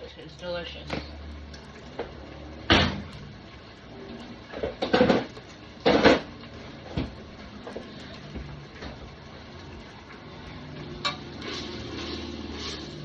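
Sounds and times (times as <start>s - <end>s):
cookware knocks and clanks: 4.6s - 6.3s.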